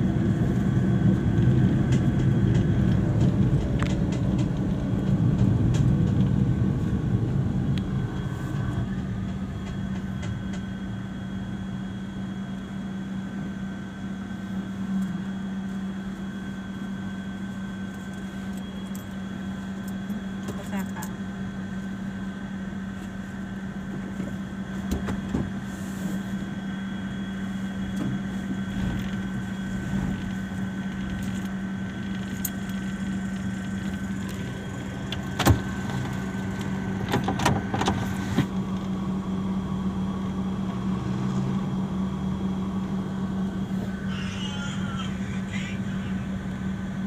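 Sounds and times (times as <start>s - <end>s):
car cabin hum: 23.0s - 40.9s, 41.5s - 47.0s.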